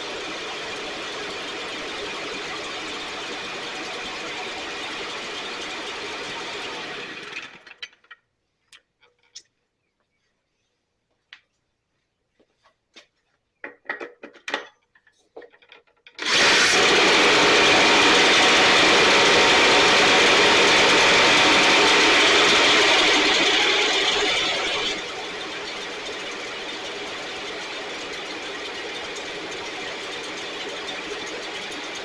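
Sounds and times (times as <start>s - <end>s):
leaf blower engine running: 0.0s - 7.7s, 16.2s - 32.0s
knocks and clatters: 7.6s - 8.3s, 12.9s - 16.2s.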